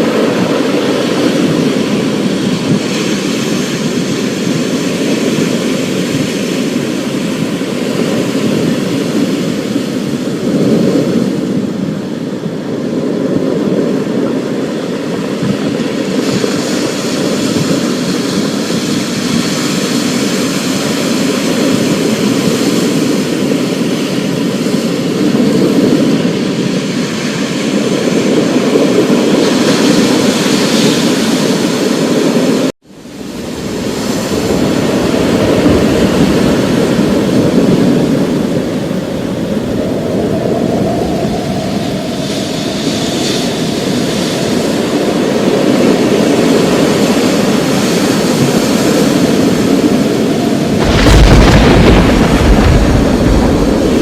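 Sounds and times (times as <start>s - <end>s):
rain and wind roar: 0.0s - 54.0s
deep thunder rumble: 33.3s - 46.7s, 48.4s - 54.0s.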